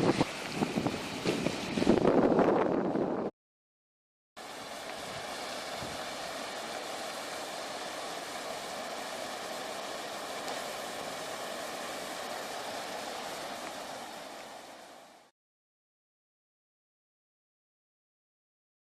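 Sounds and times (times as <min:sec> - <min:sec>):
heavy rain hissing: 0:00.0 - 0:03.2, 0:04.4 - 0:15.3.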